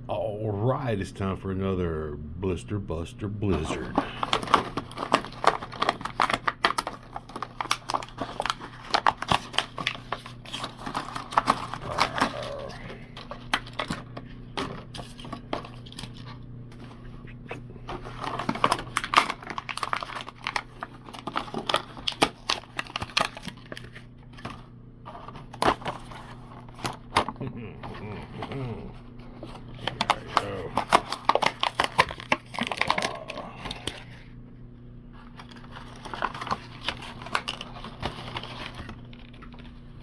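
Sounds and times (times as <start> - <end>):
steady low hum: 0.0 - 6.3, 9.8 - 18.8, 24.1 - 40.0
plastic packaging tearing and crinkling: 3.6 - 14.1, 14.8 - 16.4, 18.0 - 24.6, 29.5 - 34.0, 35.3 - 40.0.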